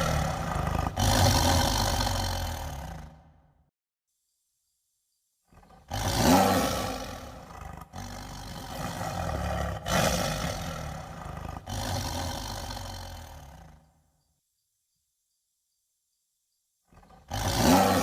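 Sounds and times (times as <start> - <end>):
large animal roaring: 0.0 - 3.3, 5.5 - 13.9, 16.9 - 18.0.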